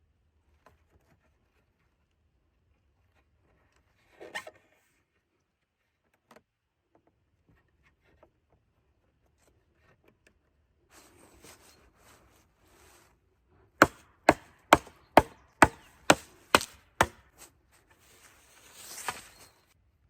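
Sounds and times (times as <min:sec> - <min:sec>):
handling scrapes and rustles: 0:10.9 - 0:14.8, 0:15.6 - 0:19.8.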